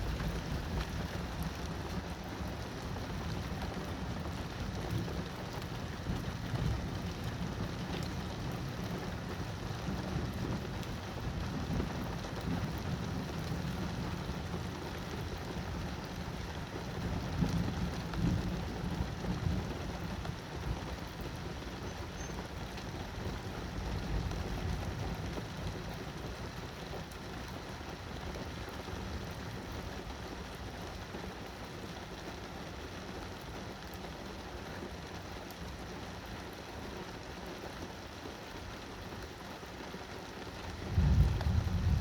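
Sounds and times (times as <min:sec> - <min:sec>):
steady rain falling: 0:00.0 - 0:42.0
thunder rumble: 0:40.8 - 0:42.0.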